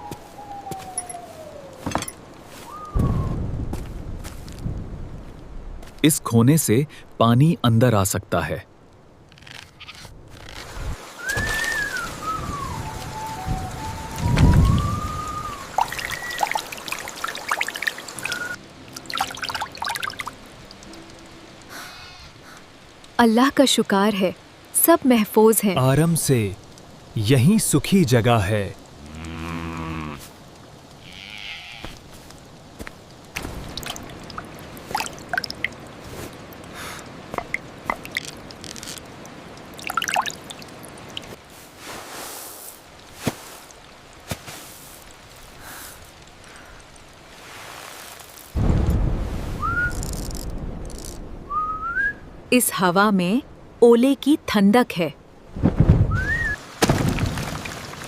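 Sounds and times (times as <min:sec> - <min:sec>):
rain falling: 0:00.0 - 0:58.0
water drips and patters: 0:08.8 - 0:31.1, 0:31.9 - 0:51.4, 0:55.6 - 0:58.0
low rumble of thunder: 0:48.6 - 0:52.5.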